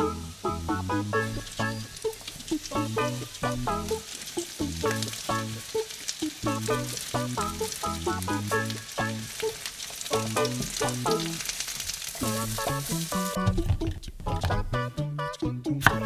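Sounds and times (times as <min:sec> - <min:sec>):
melody of pitched notes: 0:00.0 - 0:05.8
vegetables sizzling in a frying pan: 0:00.0 - 0:13.7
spatula stirring: 0:01.2 - 0:14.6.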